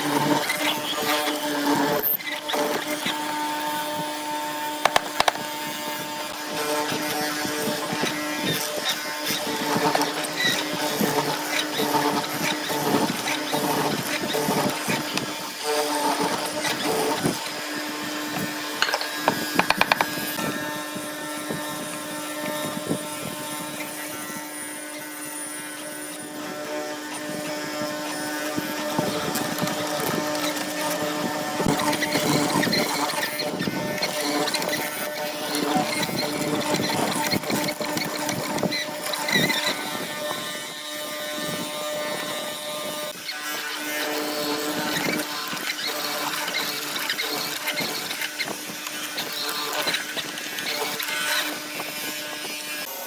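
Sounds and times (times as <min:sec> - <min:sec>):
sharp taps: 0:04.9 - 0:05.5, 0:18.8 - 0:20.2
wooden knocks: 0:04.9 - 0:05.5, 0:18.8 - 0:20.2
woodworking machinery humming: 0:04.9 - 0:05.5, 0:18.8 - 0:20.2.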